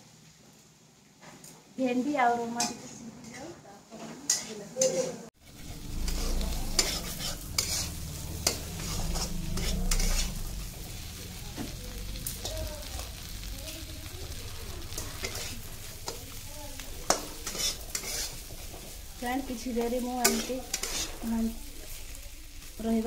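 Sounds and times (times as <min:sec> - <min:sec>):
okra sizzling in oil: 0:00.0 - 0:23.0
metal ladle scraping and clinking: 0:04.3 - 0:11.0, 0:14.9 - 0:16.2, 0:17.1 - 0:19.0, 0:20.2 - 0:21.2.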